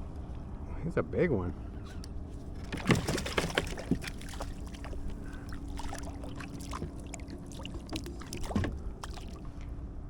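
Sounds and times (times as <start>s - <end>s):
low hum: 0.0s - 10.0s
water dripping and splashing: 2.7s - 9.6s.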